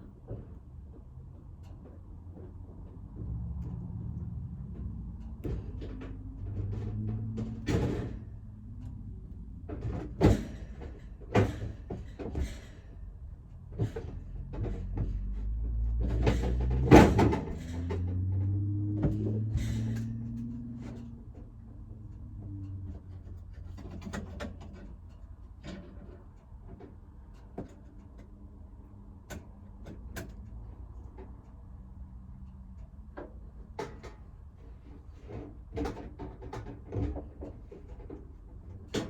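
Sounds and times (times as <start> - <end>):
doors knocking and banging: 13.7 - 21.0.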